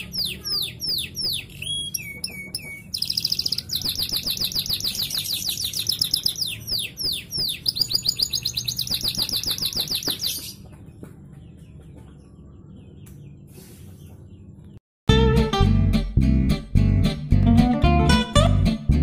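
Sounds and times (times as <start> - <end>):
canary singing trills: 0.0 - 14.8.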